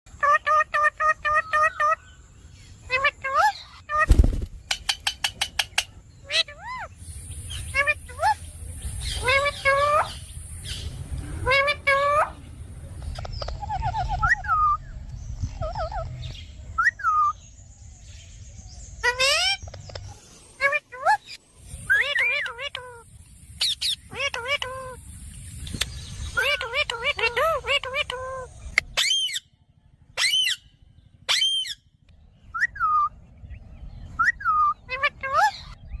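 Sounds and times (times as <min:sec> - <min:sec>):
parrot calling: 0:00.1 - 0:02.2, 0:02.8 - 0:04.2, 0:04.8 - 0:12.5, 0:13.1 - 0:15.0, 0:19.0 - 0:25.0, 0:26.2 - 0:29.5, 0:30.2 - 0:33.2.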